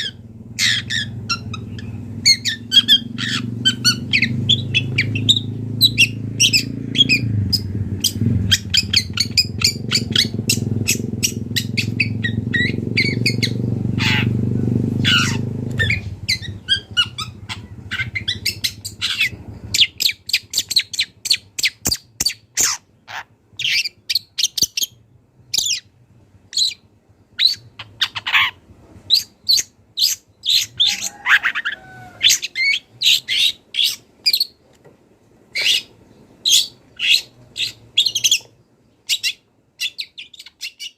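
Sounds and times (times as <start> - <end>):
shrike singing: 0.0 - 21.2
steady low hum: 0.0 - 40.3.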